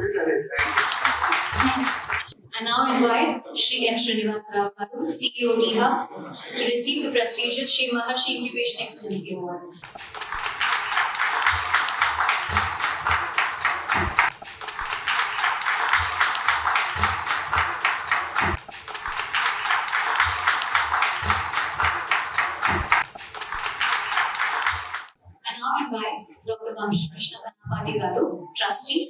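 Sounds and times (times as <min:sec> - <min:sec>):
audience applauding: 0:00.5 - 0:02.4, 0:09.8 - 0:25.1.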